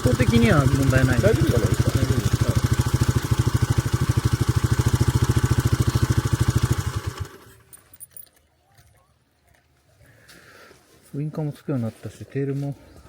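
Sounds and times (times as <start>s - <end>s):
motorcycle engine idling: 0.0s - 7.8s.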